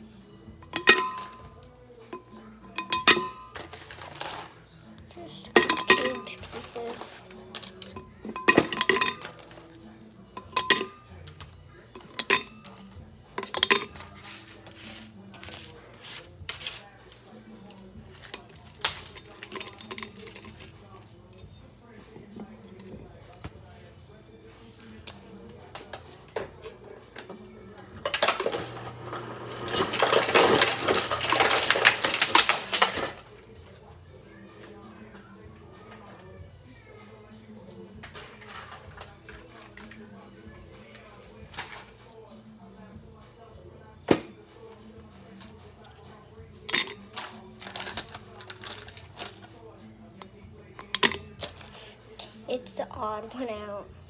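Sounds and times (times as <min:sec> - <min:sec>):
knife clinking on a plate: 0:00.6 - 0:03.8, 0:05.6 - 0:06.4
objects clattering against dishware: 0:00.6 - 0:04.6, 0:05.4 - 0:09.8, 0:10.4 - 0:16.9, 0:17.6 - 0:23.4, 0:25.8 - 0:33.7, 0:37.9 - 0:40.1, 0:46.6 - 0:49.6, 0:50.2 - 0:52.4.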